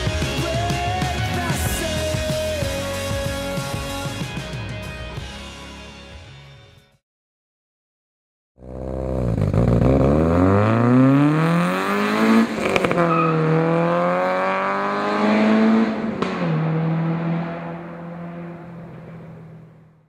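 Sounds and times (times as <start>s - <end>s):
car engine revving and shifting: 8.6s - 19.9s.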